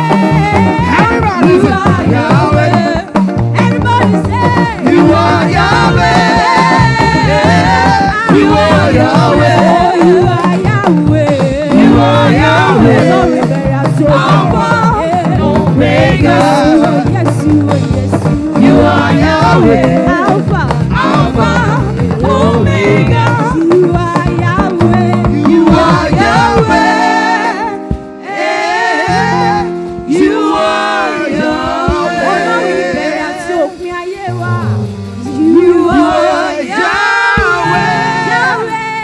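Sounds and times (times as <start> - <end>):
full band accompaniment: 0.0 - 39.0
gospel singing: 0.0 - 39.0
held keyboard chords: 0.0 - 39.0.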